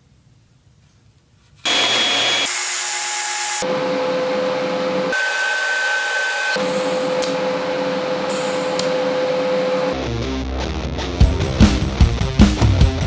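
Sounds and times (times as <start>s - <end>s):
power tool whirring: 1.6s - 10.0s.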